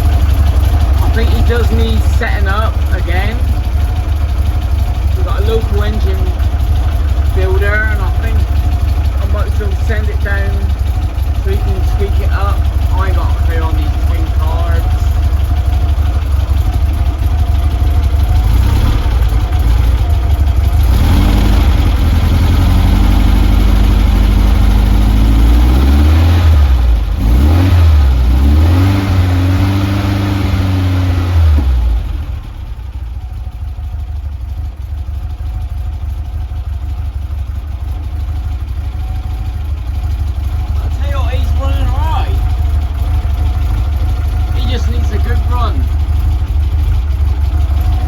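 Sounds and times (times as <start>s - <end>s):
engine idling and revving: 0.0s - 48.0s.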